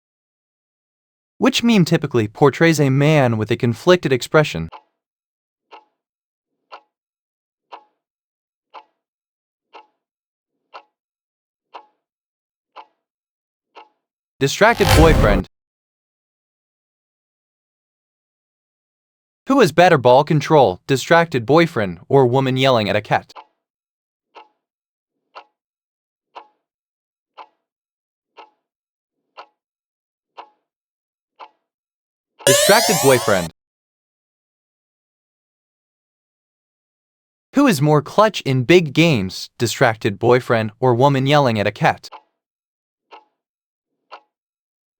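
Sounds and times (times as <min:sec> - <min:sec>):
countdown timer clock ticking: 0:32.5 - 0:33.5.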